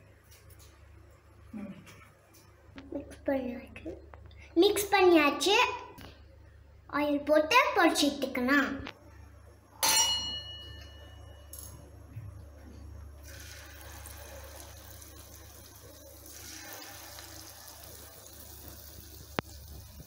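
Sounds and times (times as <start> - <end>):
food deep-frying in oil: 13.2 - 20.0.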